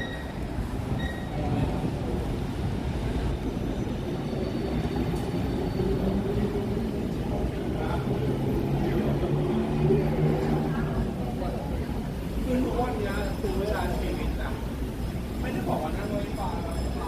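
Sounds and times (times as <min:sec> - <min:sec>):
city vehicles rumbling: 0:00.0 - 0:17.0.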